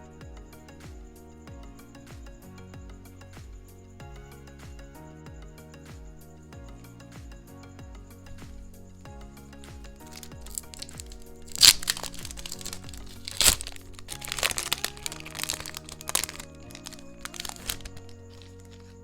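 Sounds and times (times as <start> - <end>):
background music: 0.0 - 19.0
card packaging crinkling: 9.6 - 19.0
sharp cracks of packaging: 9.6 - 19.0.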